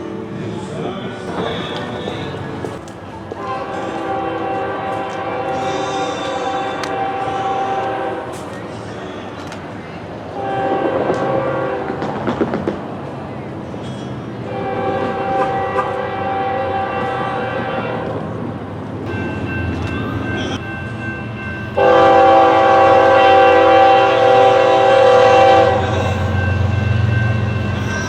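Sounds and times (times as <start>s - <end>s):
low train rumble: 0.0s - 28.0s
locomotive air horn blasts: 3.4s - 8.4s, 10.4s - 12.1s, 14.4s - 18.3s, 21.8s - 26.8s.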